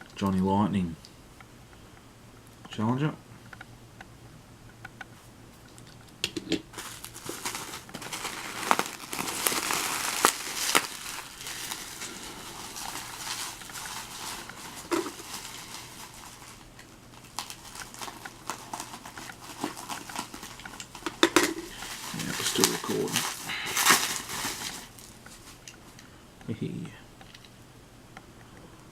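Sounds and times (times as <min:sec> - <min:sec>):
packaging crinkling: 0:06.7 - 0:26.0.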